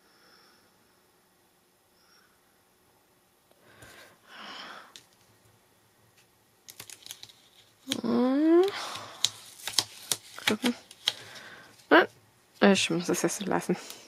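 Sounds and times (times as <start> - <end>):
paper and card clicks and taps: 6.2 - 11.4
paper rustle: 6.7 - 11.9.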